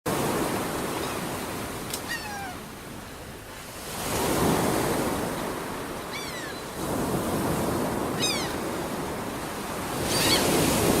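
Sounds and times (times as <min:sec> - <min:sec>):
sea waves washing on shore: 0:00.1 - 0:11.0
gull cries: 0:02.1 - 0:02.7, 0:06.1 - 0:06.7, 0:08.2 - 0:08.6, 0:10.1 - 0:10.5.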